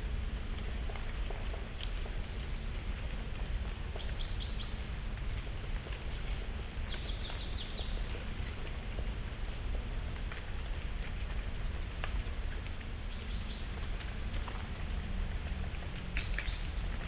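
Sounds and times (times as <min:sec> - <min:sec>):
falling leaves ticking: 0:00.0 - 0:17.0
songbirds chirping: 0:01.5 - 0:02.9, 0:03.5 - 0:08.7, 0:12.5 - 0:17.0.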